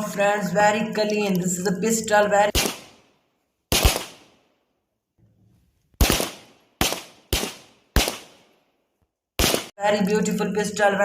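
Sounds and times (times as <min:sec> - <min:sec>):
toy pistol gunshots: 0:02.5 - 0:03.0, 0:03.7 - 0:04.3, 0:06.0 - 0:08.4, 0:09.4 - 0:09.8.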